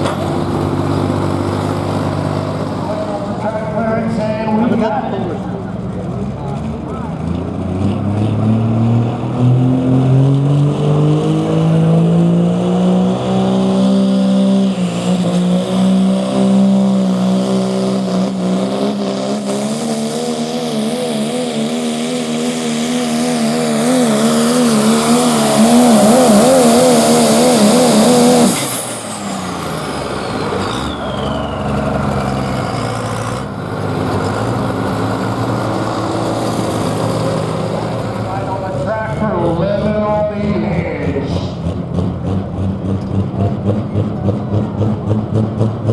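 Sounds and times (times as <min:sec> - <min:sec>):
diesel truck engine at full throttle: 0:00.0 - 0:45.9
high whistle: 0:30.7 - 0:31.9.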